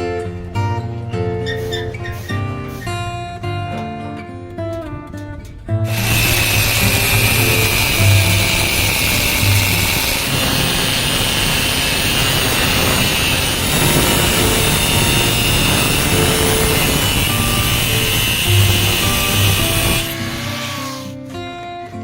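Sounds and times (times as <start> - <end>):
high whine: 5.9 - 21.2
power tool machine noise: 5.9 - 21.4.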